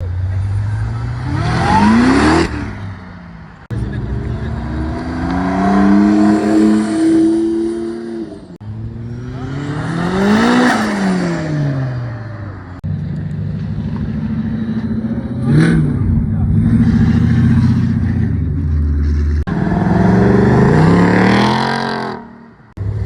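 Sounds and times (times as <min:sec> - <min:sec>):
car engine revving: 0:00.0 - 0:23.0
low exhaust rumble: 0:12.9 - 0:19.5.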